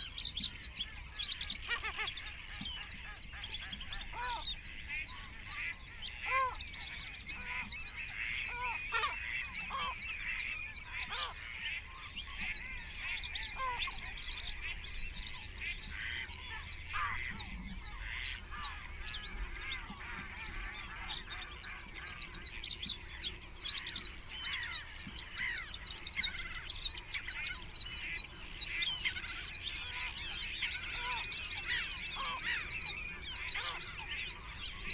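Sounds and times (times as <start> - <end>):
flock of birds chirping: 0.0 - 34.9
lower bird calls: 0.0 - 34.9.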